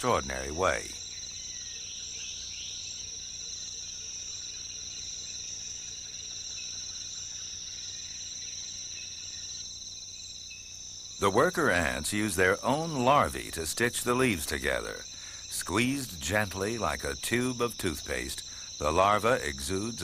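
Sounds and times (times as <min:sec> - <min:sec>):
insects chorus high-pitched: 0:00.0 - 0:20.0
faint low hum: 0:11.2 - 0:20.0.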